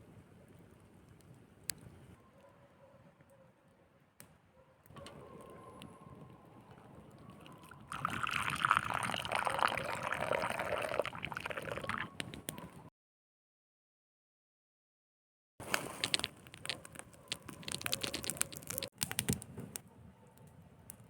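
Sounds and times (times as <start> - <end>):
liquid pouring into a cup: 7.6 - 12.2.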